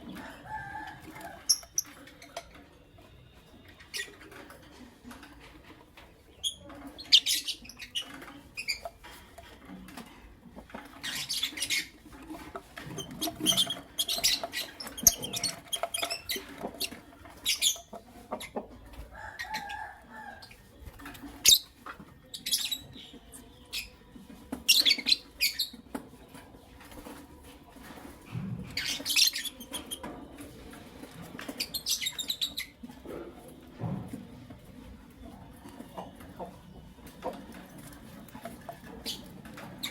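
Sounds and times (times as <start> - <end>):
lovebirds chirping: 13.0 - 25.8, 31.4 - 32.8.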